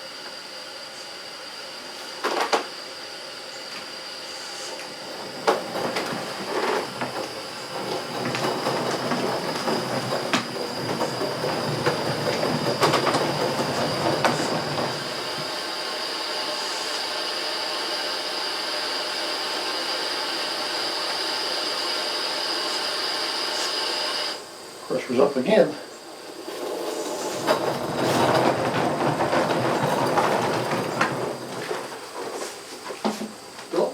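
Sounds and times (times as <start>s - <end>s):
model locomotive grinding and clattering: 4.3s - 33.8s
steam hiss: 12.7s - 28.4s.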